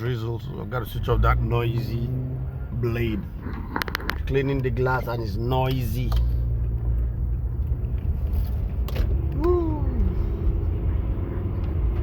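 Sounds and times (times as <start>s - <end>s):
car driving rumble inside cabin: 0.0s - 12.0s.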